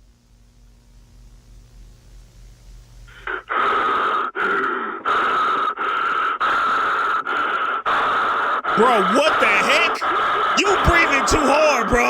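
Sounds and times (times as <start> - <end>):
heavy breathing: 3.1 - 12.0.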